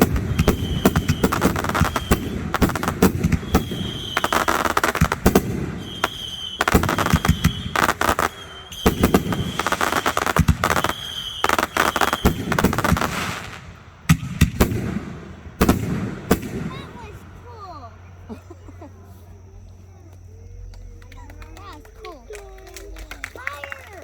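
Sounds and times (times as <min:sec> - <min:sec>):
firework whistle: 0:00.0 - 0:14.7
fireworks reports and crackling: 0:00.0 - 0:24.0.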